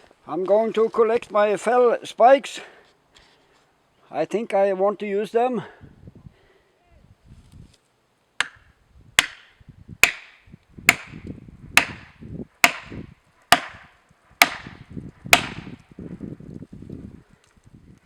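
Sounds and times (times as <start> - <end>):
heavy blows on wood: 8.4 - 15.8.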